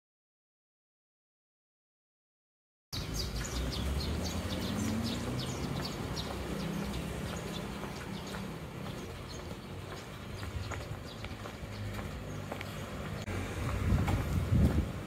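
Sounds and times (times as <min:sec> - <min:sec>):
small birds chirping: 0:03.0 - 0:13.8
steady low rumble: 0:13.2 - 0:15.0.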